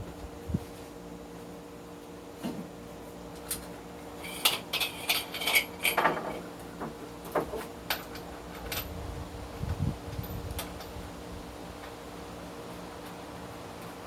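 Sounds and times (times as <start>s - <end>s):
metal tools clinking and scraping: 4.2s - 6.4s.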